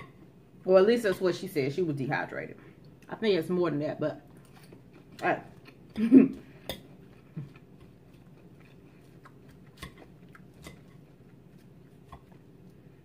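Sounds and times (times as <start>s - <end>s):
person chewing salad: 4.3s - 13.0s.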